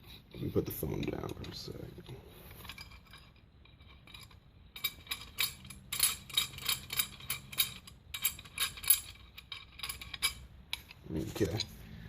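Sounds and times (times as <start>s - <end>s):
metal clamp clinking: 2.5s - 11.7s.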